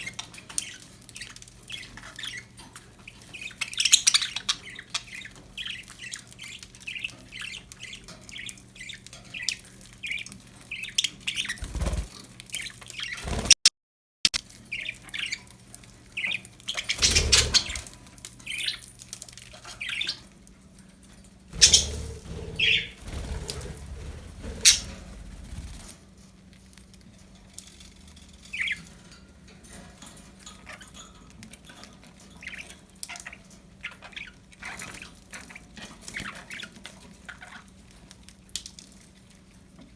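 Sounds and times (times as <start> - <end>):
budgerigars chirping: 0.0 - 13.4, 16.2 - 18.9, 19.6 - 20.2, 21.6 - 25.9, 28.5 - 28.8.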